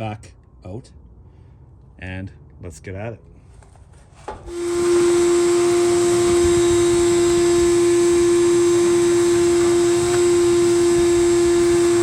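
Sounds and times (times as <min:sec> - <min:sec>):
shop vac motor humming: 0:04.4 - 0:12.0
vacuum sucking debris: 0:04.5 - 0:12.0.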